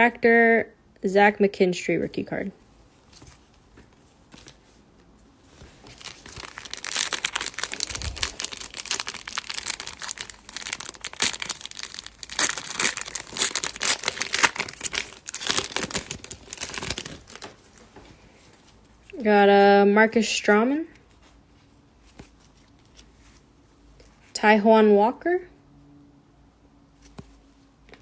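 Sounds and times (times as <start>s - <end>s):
foil wrapper tearing and crinkling: 5.8s - 17.6s.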